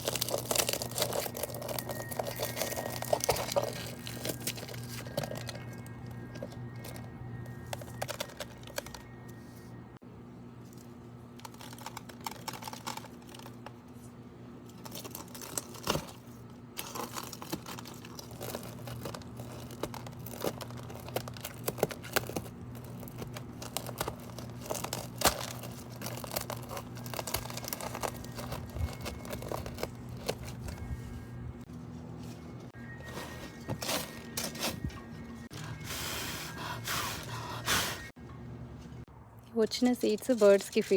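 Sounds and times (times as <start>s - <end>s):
seeds crackling and snapping: 0.0s - 6.0s, 16.8s - 30.8s.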